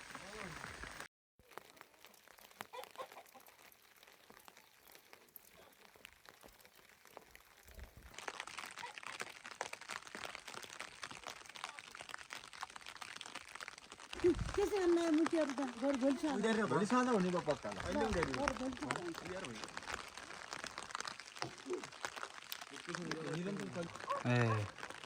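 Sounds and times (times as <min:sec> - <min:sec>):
crackle of small clicks: 0:00.0 - 0:25.0.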